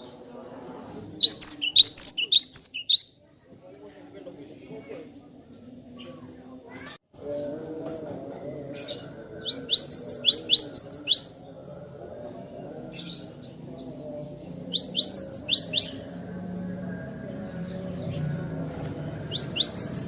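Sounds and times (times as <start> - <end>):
bird singing rising whistled notes: 1.2 - 3.1, 9.5 - 11.3, 14.7 - 16.0, 19.3 - 20.0.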